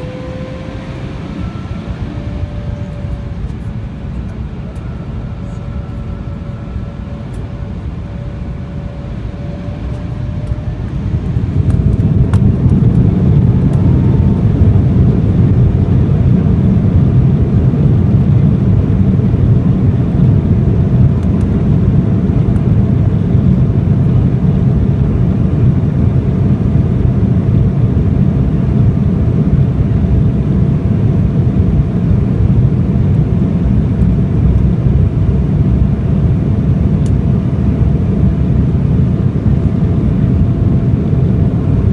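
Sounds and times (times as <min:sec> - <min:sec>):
jet engines spooling up: 0:00.0 - 0:16.1
faint engine whine: 0:00.0 - 0:41.9.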